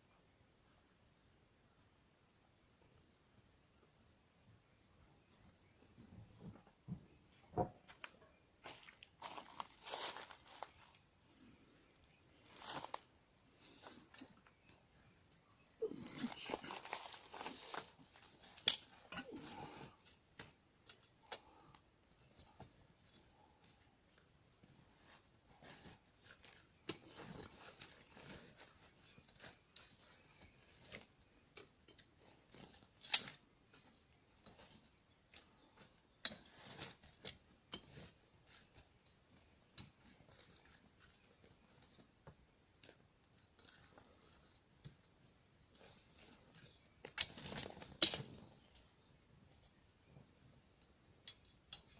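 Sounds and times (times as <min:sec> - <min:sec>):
wood fire crackling: 0:08.6 - 0:49.0.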